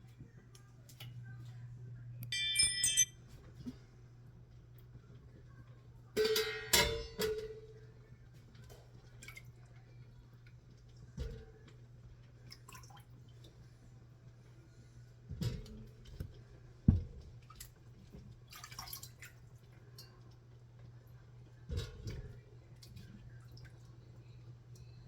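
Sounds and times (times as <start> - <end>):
high ringing scrape: 2.3 - 3.1.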